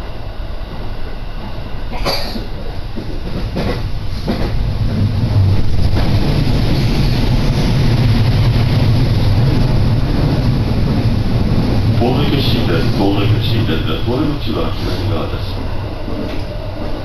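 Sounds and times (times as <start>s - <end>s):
passing train rumble: 0.0s - 17.0s
train running noise from inside: 0.0s - 17.0s
rail-joint clacks: 1.9s - 8.6s, 10.2s - 17.0s.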